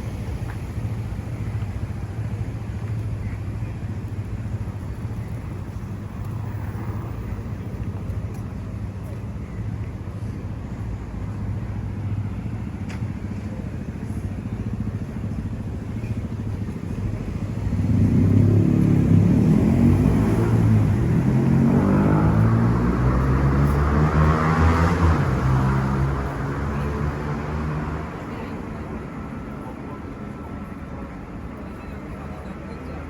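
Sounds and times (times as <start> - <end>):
street traffic rumble: 0.0 - 33.0
vehicle engine revving past: 17.7 - 28.1.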